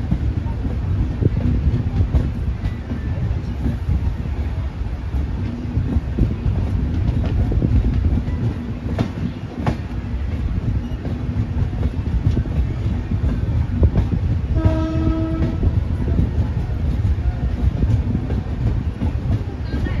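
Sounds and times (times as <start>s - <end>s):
train wheels rumbling on rail: 0.0s - 20.0s
train horn: 14.6s - 15.7s.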